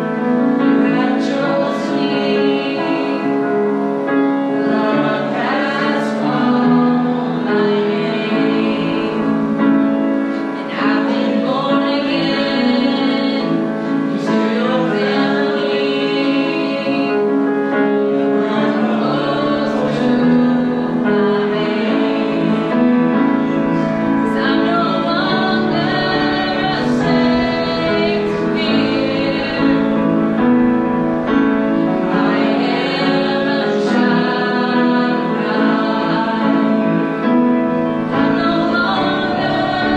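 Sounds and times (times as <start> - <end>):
woman singing: 0.0 - 3.7, 4.4 - 9.6, 10.4 - 30.6, 32.0 - 37.3, 38.1 - 39.9
congregation singing: 0.0 - 39.9
piano and band: 0.0 - 39.9.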